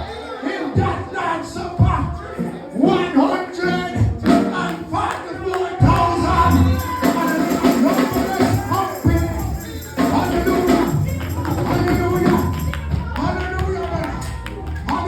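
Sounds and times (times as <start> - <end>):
voices singing: 0.0 - 15.0
bass line: 5.8 - 15.0
tambourine shaking: 5.9 - 14.2.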